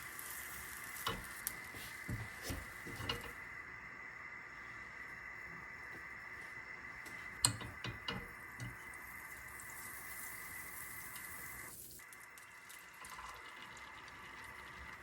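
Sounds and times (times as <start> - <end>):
tap running: 1.0 - 3.4, 7.0 - 9.4.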